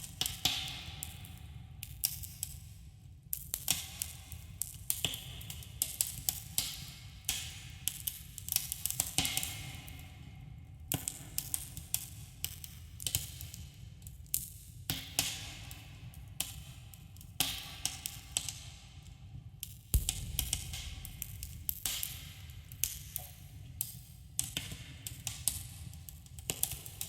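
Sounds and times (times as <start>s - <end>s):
low rumble and hiss: 20.0s - 22.8s.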